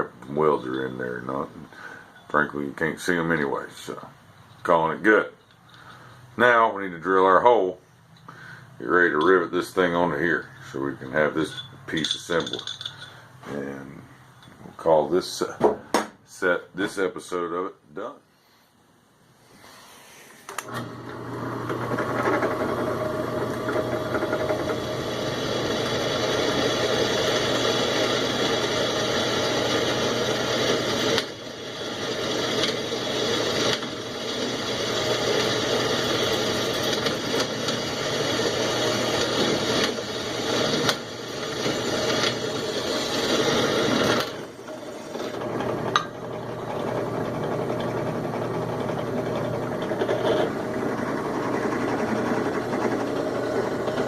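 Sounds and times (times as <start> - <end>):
electric drill drilling metal: 20.7 - 54.0.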